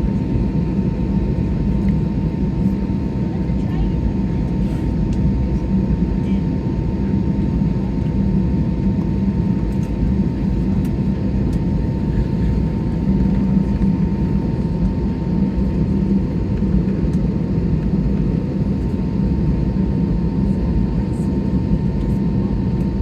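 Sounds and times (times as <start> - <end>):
jet engines droning: 0.0 - 23.0.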